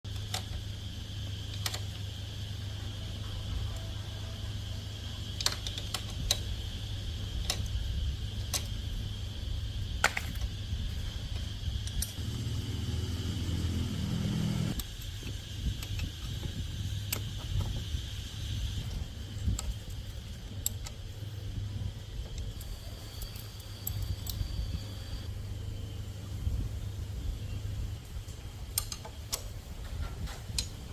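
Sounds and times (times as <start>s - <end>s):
low hum: 0.1s - 30.9s
lower fuller hum: 6.5s - 19.5s.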